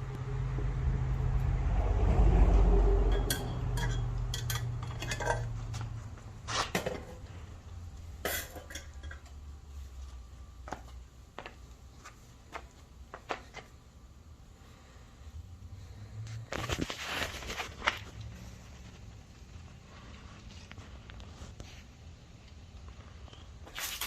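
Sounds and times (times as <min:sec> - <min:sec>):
low rumble: 0:00.0 - 0:04.3
light metallic clinks: 0:03.1 - 0:05.5.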